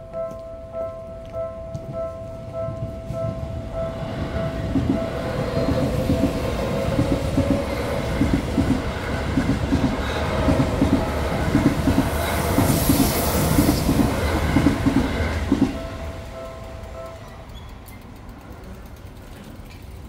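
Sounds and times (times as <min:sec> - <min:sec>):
crossing warning bell ringing: 0:00.0 - 0:20.0
train wheels clacking over rail joints: 0:04.6 - 0:15.9.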